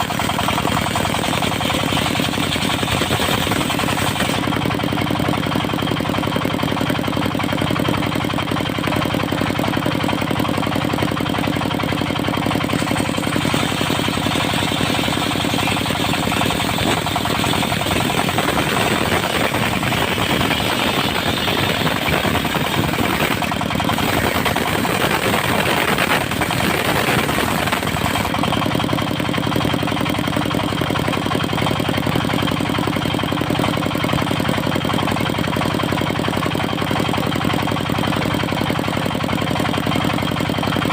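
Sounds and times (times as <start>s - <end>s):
saw blade cutting log: 0.0s - 4.8s, 12.4s - 28.5s
sawmill diesel engine running: 0.0s - 40.9s.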